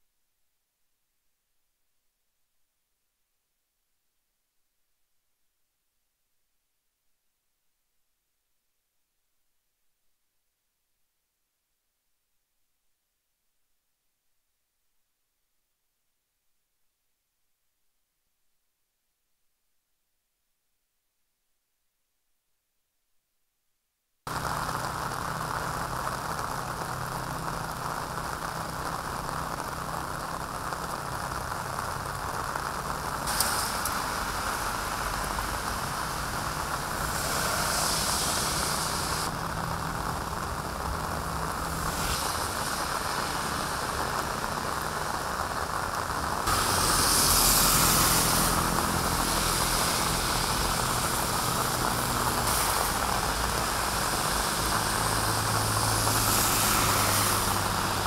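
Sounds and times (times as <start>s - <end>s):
heavy rain on wet road: 24.3s - 58.0s.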